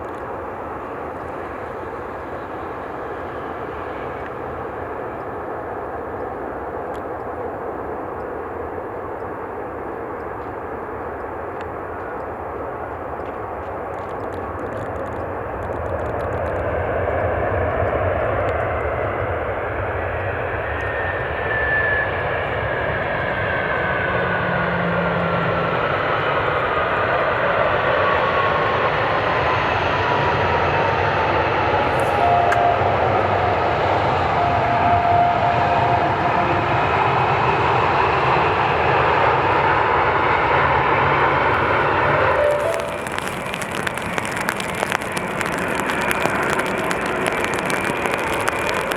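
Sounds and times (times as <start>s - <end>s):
jet airliner engine roar: 0.0s - 48.9s
jet engine whine falling in pitch: 16.9s - 43.6s.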